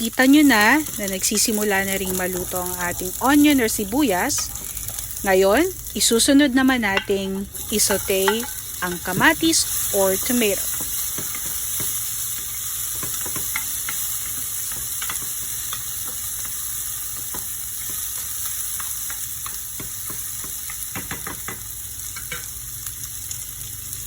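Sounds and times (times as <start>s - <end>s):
vegetables sizzling in oil: 0.0s - 24.0s.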